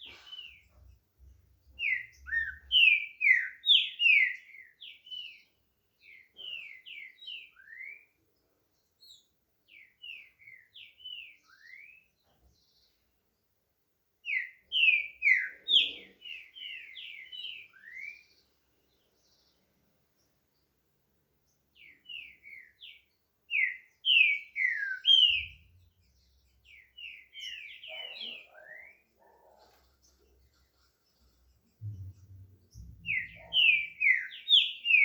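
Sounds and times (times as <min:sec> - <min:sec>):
bird whistling song: 0:01.8 - 0:08.1, 0:09.1 - 0:12.0, 0:14.3 - 0:18.3, 0:21.8 - 0:26.0, 0:26.6 - 0:29.1, 0:31.8 - 0:35.0.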